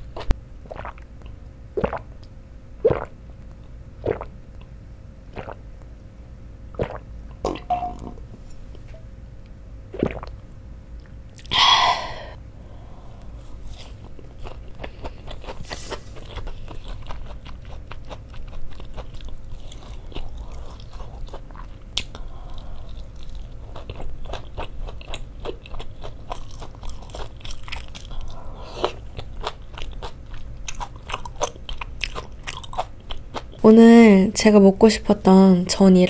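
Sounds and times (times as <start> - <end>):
person biting and chewing: 13.5 - 33.6.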